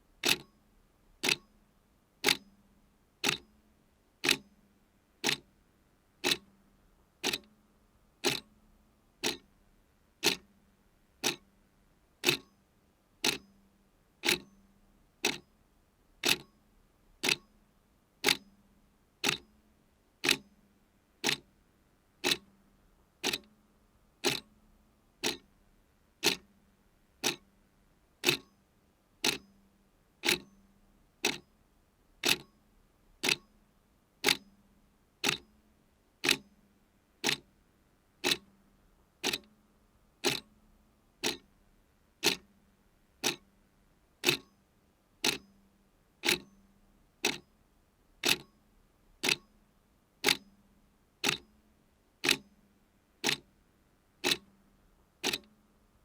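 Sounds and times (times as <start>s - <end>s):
clock ticking: 0.2s - 0.4s, 1.2s - 1.4s, 2.2s - 2.4s, 3.2s - 3.4s, 4.2s - 4.4s, 5.2s - 5.4s, 6.2s - 6.4s, 7.2s - 7.5s, 8.2s - 8.5s, 9.2s - 9.4s, 10.2s - 10.4s, 11.2s - 11.4s, 12.2s - 12.5s, 13.2s - 13.4s, 14.2s - 14.5s, 16.2s - 16.5s, 17.2s - 17.4s, 19.2s - 19.4s, 20.2s - 20.4s, 21.2s - 21.4s, 22.2s - 22.4s, 23.2s - 23.5s, 24.2s - 24.5s, 25.2s - 25.4s, 26.2s - 26.4s, 27.2s - 27.4s, 28.2s - 28.5s, 29.2s - 29.4s, 30.2s - 30.5s, 31.2s - 31.4s, 32.2s - 32.5s, 33.2s - 33.5s, 34.2s - 34.4s, 35.2s - 35.4s, 36.2s - 36.4s, 37.2s - 37.4s, 38.2s - 38.5s, 39.2s - 39.5s, 40.2s - 40.5s, 41.2s - 41.5s, 42.2s - 42.5s, 43.2s - 43.4s, 44.2s - 44.5s, 45.2s - 45.4s, 46.2s - 46.5s, 47.2s - 47.4s, 48.2s - 48.5s, 49.2s - 49.5s, 50.2s - 50.4s, 51.2s - 51.4s, 52.2s - 52.4s, 53.2s - 53.4s, 54.2s - 54.5s, 55.2s - 55.6s.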